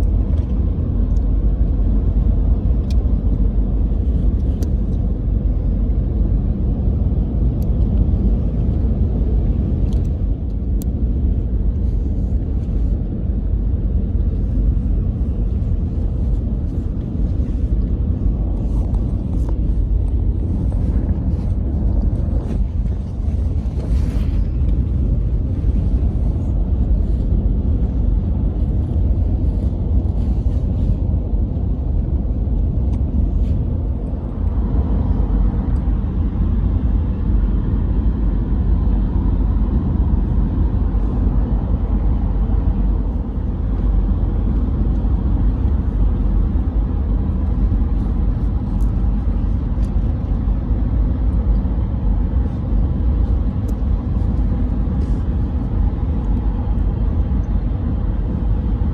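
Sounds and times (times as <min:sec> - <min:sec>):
loud low rumble: 0:00.0 - 0:58.9.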